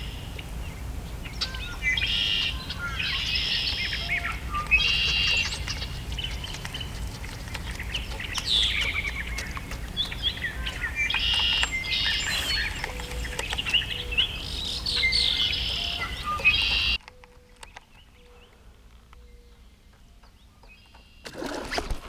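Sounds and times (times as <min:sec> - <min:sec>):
steady low rumble: 0:00.0 - 0:16.4
songbirds singing and chirping: 0:00.0 - 0:22.0.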